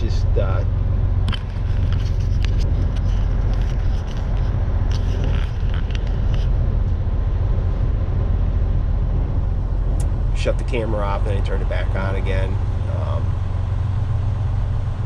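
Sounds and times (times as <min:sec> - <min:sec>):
diesel truck engine rumbling: 0:00.0 - 0:15.0
light clicks and rattles: 0:01.2 - 0:07.0.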